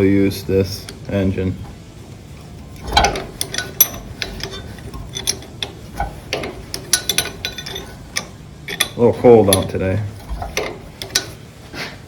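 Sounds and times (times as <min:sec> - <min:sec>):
metal tools clicking and clinking: 0:02.7 - 0:11.4.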